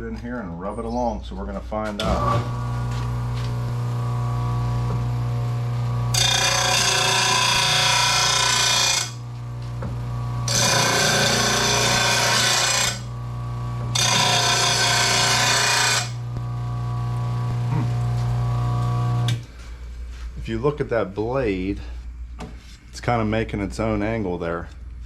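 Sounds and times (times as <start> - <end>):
blade sharpener humming: 2.1 - 19.4
blade grinding rasp: 6.1 - 9.2, 10.5 - 13.1, 13.9 - 16.2.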